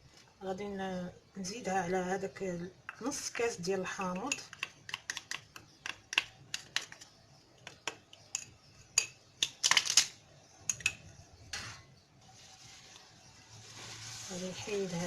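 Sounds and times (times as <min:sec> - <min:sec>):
metal spoon clinking on dish: 0:10.7 - 0:11.7.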